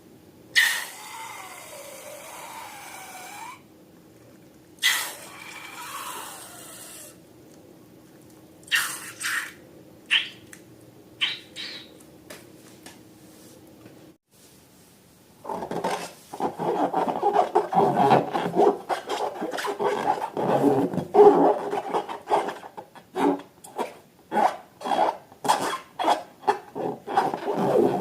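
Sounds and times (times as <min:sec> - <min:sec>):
rubber balloon squealing: 0:00.6 - 0:03.6, 0:04.8 - 0:07.2, 0:11.2 - 0:11.9, 0:15.5 - 0:28.0.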